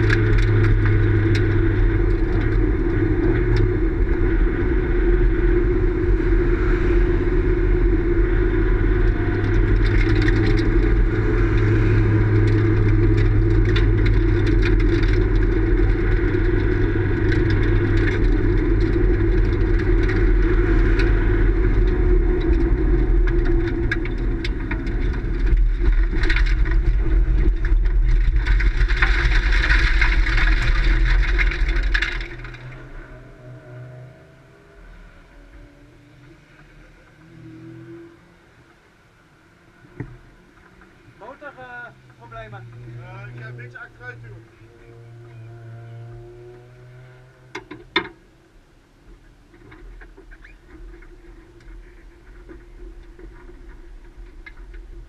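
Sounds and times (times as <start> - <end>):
race car engine running: 0.0 - 34.6.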